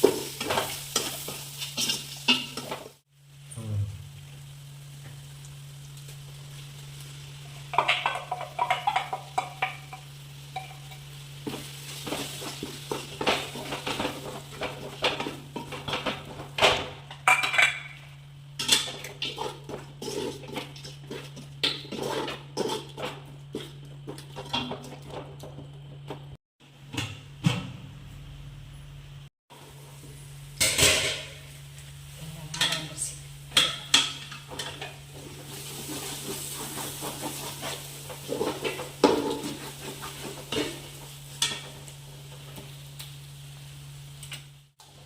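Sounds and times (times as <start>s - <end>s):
light sizzle: 0.0s - 45.0s
metal spoon stirring in pot: 18.6s - 25.2s.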